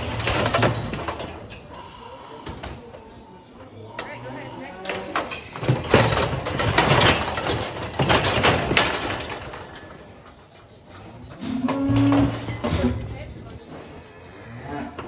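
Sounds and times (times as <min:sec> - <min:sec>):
metal gates clattering: 0:00.0 - 0:01.7, 0:04.9 - 0:10.4, 0:11.4 - 0:13.6.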